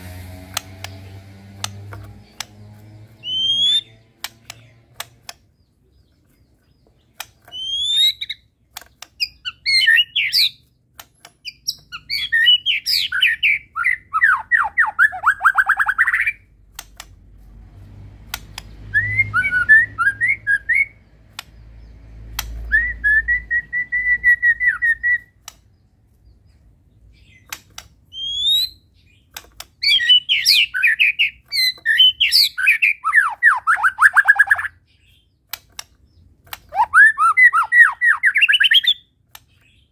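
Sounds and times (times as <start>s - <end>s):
sharp single clicks: 0.5s - 2.6s, 3.2s - 5.6s, 7.0s - 13.6s, 15.8s - 17.4s, 18.2s - 18.9s, 20.7s - 22.7s, 25.2s - 25.8s, 27.3s - 32.5s, 35.4s - 36.8s, 39.2s - 39.8s
bird chattering song phrases: 2.1s - 16.5s, 18.6s - 39.9s.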